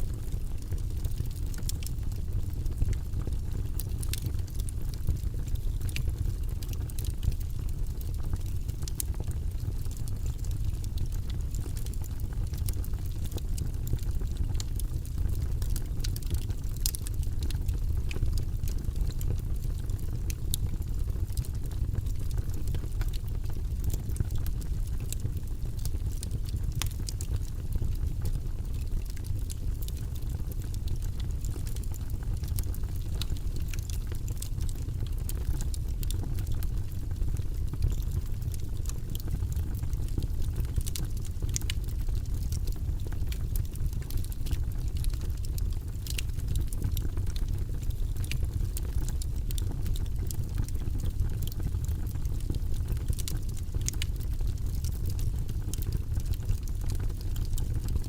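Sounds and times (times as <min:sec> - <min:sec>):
logs burning in fireplace: 0:00.0 - 0:58.0.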